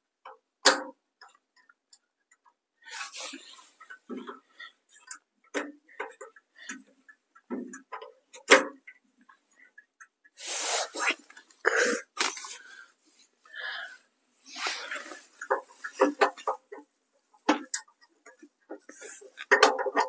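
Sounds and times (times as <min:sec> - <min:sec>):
metal clicks and knocks: 0:05.0 - 0:10.2, 0:15.4 - 0:20.0.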